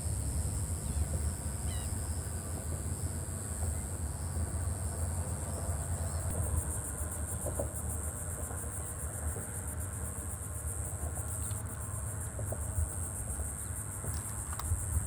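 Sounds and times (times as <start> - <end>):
low rumble of wind: 0.0 - 15.0
high-pitched insect buzz: 0.8 - 2.4.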